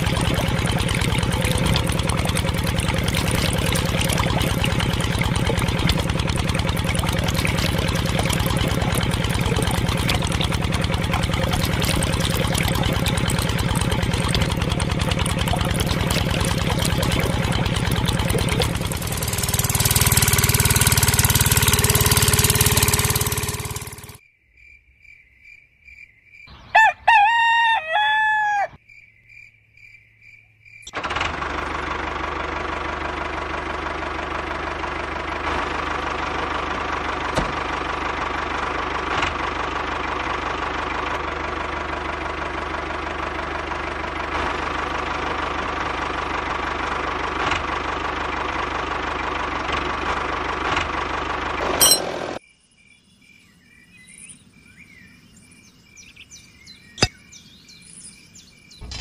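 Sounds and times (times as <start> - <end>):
small engine running: 0.0 - 24.2, 30.9 - 52.4
rooster crowing: 26.6 - 28.8.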